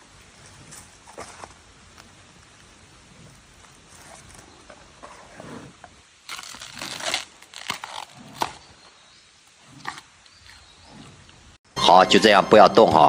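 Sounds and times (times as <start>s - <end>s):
sharp cracks of stalks: 6.2s - 8.7s.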